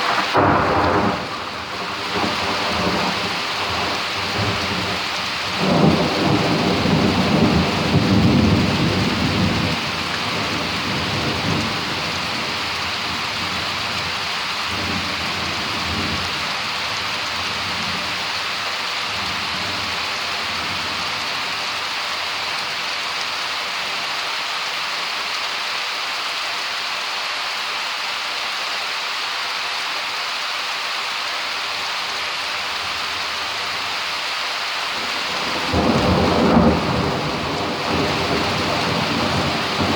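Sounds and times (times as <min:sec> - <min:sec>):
thunder rumbling: 0:00.0 - 0:18.2, 0:34.9 - 0:39.9
rain falling: 0:00.0 - 0:39.9.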